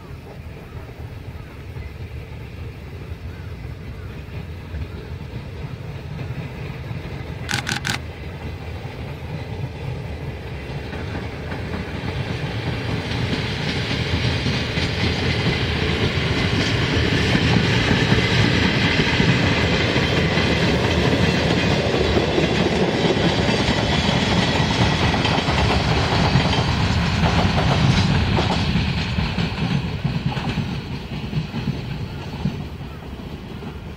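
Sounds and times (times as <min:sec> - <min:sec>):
freight train rumbling: 0:00.0 - 0:33.9.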